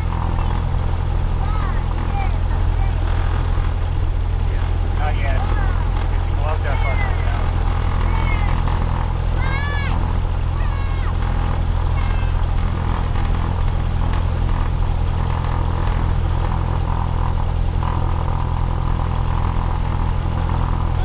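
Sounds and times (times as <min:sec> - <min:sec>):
light aircraft engine droning: 0:00.0 - 0:21.0.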